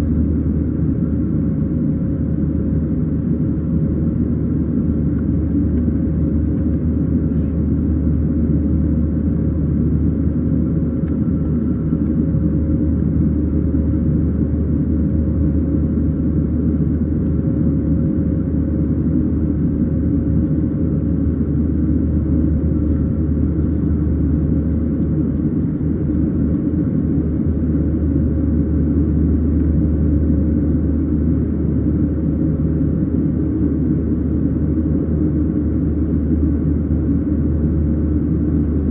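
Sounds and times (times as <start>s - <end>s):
airplane cabin roar: 0.0s - 38.9s.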